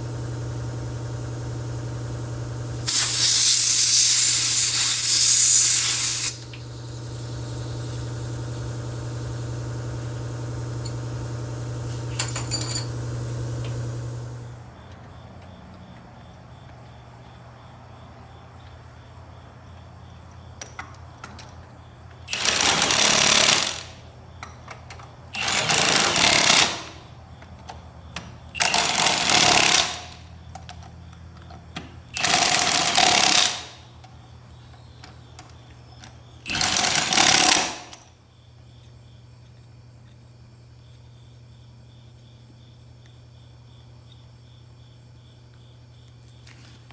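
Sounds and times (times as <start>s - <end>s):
pneumatic impact wrench bursts: 0.0s - 14.6s, 22.3s - 24.0s, 25.4s - 27.0s, 28.6s - 30.2s, 32.2s - 33.8s, 36.4s - 38.0s.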